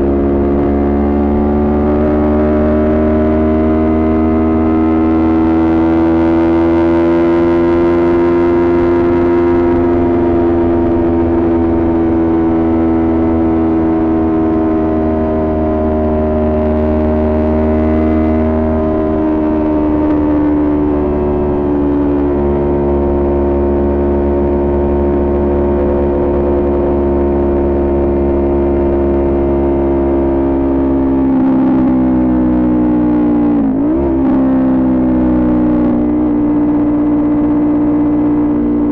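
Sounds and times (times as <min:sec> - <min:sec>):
motorcycle engine droning: 0:00.0 - 0:38.9.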